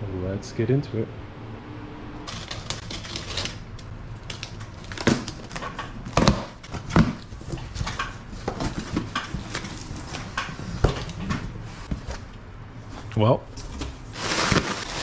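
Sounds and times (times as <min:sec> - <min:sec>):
packaging rustling and crackling: 0:02.3 - 0:03.6, 0:04.2 - 0:10.3, 0:14.0 - 0:15.0.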